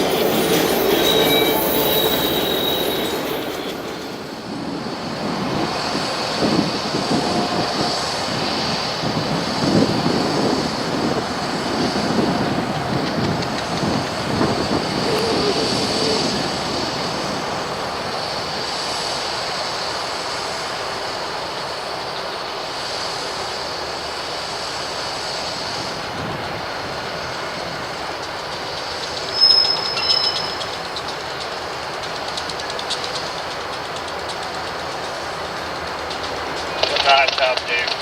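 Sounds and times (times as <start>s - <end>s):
high wheel squeal: 0.0s - 4.4s, 29.1s - 31.2s
train wheels rumbling: 0.0s - 38.0s
wheels clicking over rail joints: 27.7s - 37.0s.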